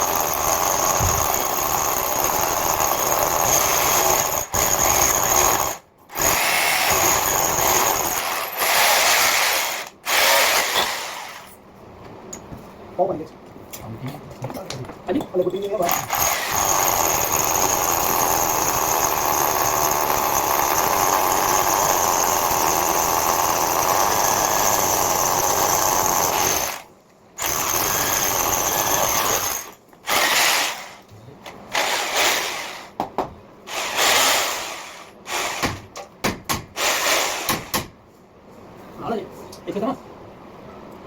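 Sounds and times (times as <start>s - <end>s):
drill cutting into brick wall: 0.0s - 11.6s, 15.9s - 31.0s, 31.7s - 32.9s, 33.7s - 35.8s, 36.7s - 37.7s.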